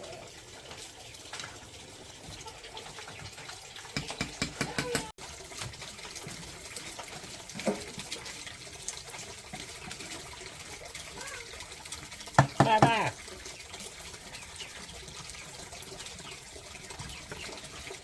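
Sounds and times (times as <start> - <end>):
water running and splashing: 0.0 - 18.0.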